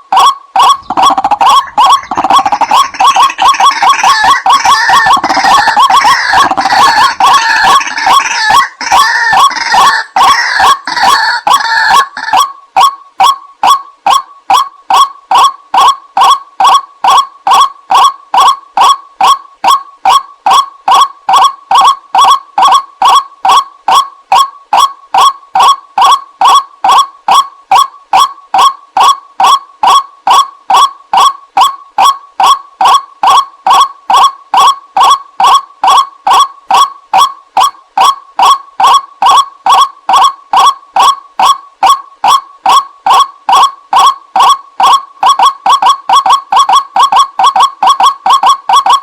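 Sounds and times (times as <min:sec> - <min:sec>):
waterhen calling: 0:00.1 - 0:49.0.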